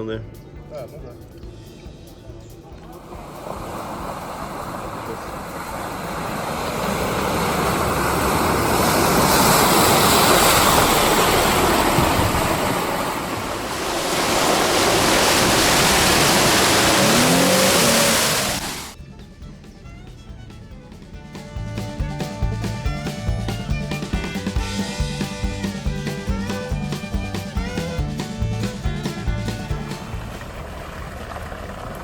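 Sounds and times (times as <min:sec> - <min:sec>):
vehicle splashing through water: 0:03.1 - 0:19.0.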